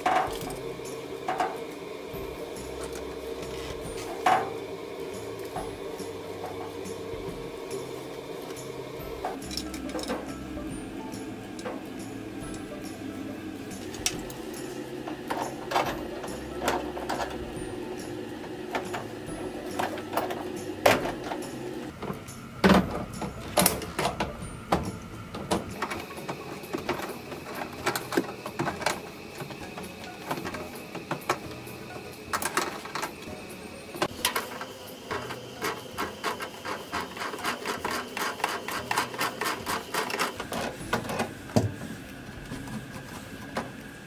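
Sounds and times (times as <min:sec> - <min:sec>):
low steady hum: 0:00.0 - 0:44.0
tools clicking and knocking: 0:09.2 - 0:10.4.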